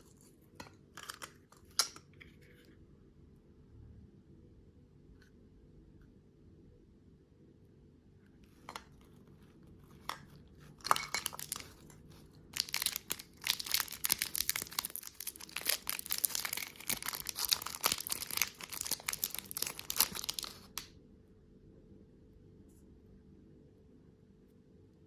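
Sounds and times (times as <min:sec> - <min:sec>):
candy crunching and crinkling: 0:08.6 - 0:20.9.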